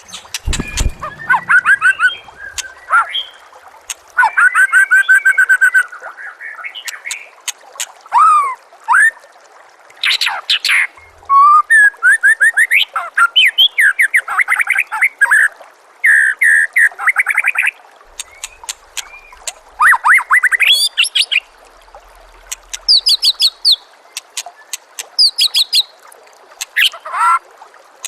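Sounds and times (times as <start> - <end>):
songbird singing varied song: 0.0 - 3.4.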